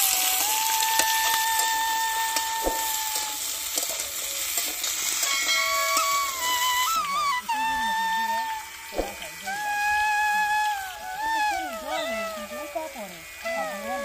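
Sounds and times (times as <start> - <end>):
metal spatula scraping a pan: 0.0 - 9.6
vegetables sizzling in hot oil: 0.0 - 14.0.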